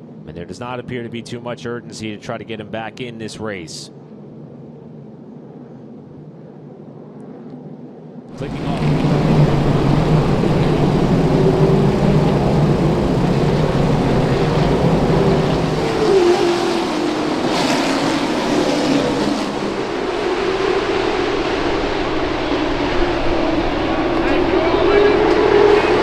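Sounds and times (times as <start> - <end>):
race car engines droning: 8.3 - 26.0
race car passing by: 8.4 - 26.0.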